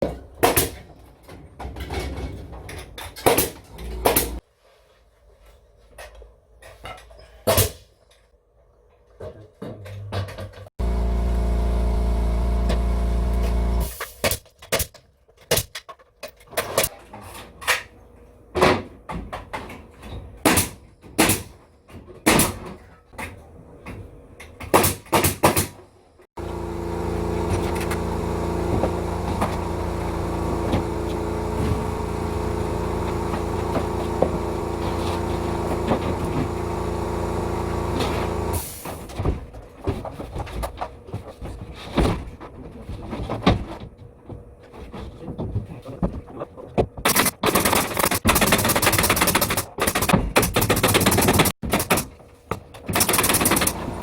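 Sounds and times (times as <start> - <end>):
steady machine hum: 10.8 - 13.9, 26.4 - 38.6.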